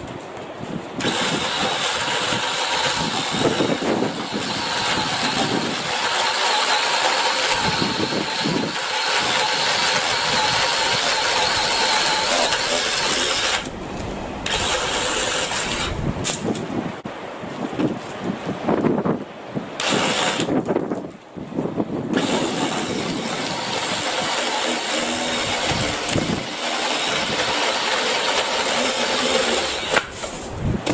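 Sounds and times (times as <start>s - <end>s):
electric saw motor whine: 1.0s - 13.8s, 14.4s - 16.0s, 22.2s - 30.1s.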